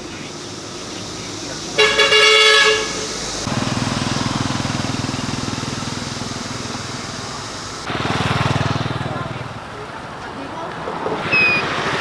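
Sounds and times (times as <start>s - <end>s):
motorbike engine passing: 0.0s - 12.0s
vehicle horn toot: 1.8s - 4.3s.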